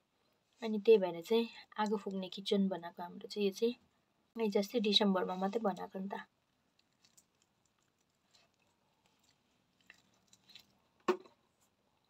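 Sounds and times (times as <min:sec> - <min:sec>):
person chewing food: 0:06.6 - 0:12.0.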